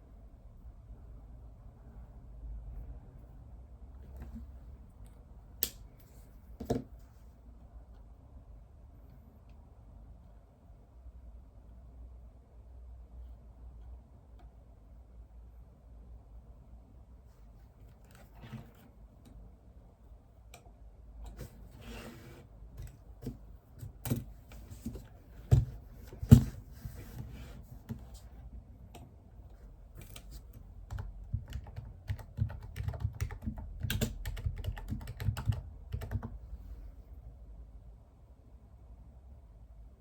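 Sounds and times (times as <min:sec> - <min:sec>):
computer keyboard typing: 0:30.0 - 0:36.4.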